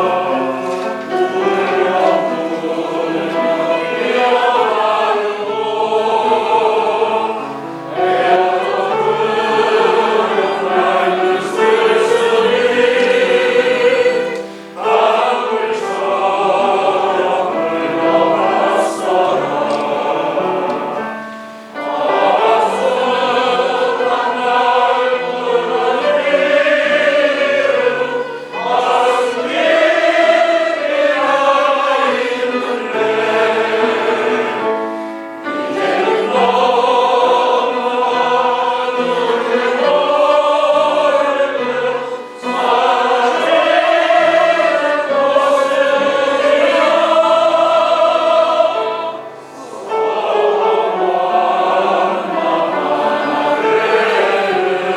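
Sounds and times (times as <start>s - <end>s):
group of people singing: 0.0s - 54.9s.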